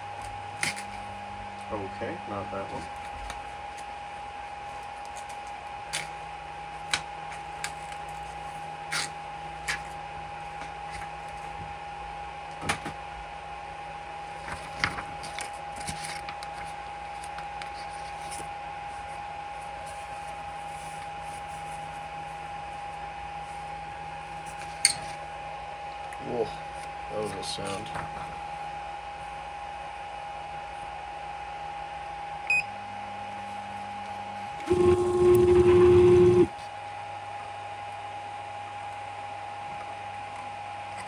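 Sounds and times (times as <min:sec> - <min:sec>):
printer high whine: 0:27.5 - 0:36.7
low hum: 0:28.1 - 0:36.5.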